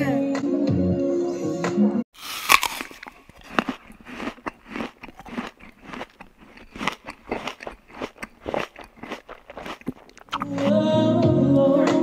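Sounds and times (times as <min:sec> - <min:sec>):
biting and chewing corn: 0:02.2 - 0:10.9.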